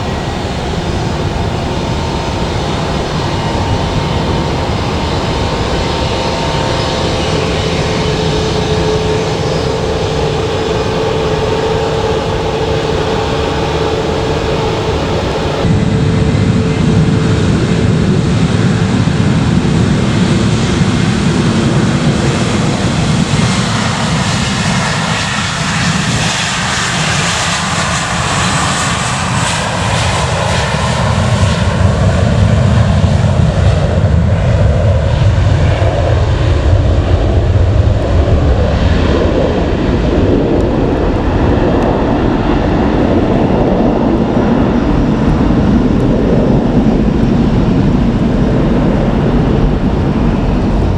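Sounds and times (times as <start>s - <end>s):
jet engines roaring: 0.0s - 16.8s, 37.5s - 50.9s.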